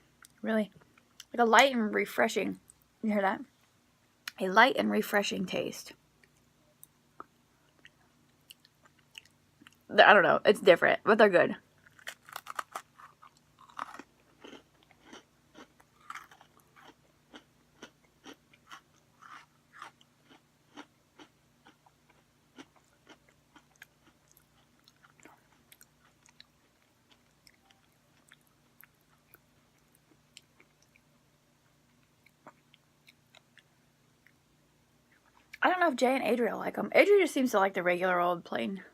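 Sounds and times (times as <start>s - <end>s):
chewing crunchy cookies: 7.2s - 9.9s, 11.8s - 34.4s.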